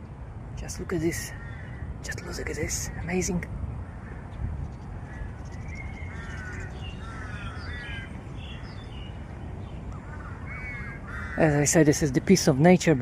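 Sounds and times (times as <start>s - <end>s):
steady low background hum: 0.0s - 13.0s
birds calling: 0.6s - 13.0s.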